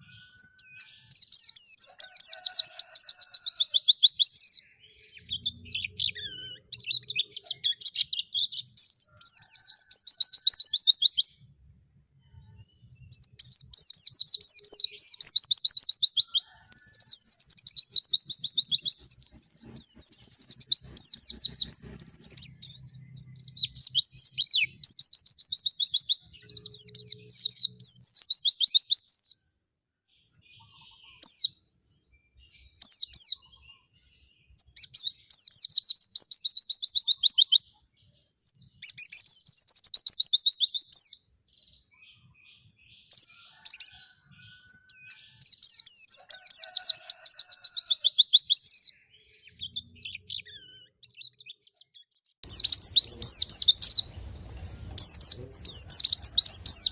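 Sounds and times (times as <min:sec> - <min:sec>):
bird twittering: 0:00.0 - 0:11.4, 0:52.4 - 0:56.9.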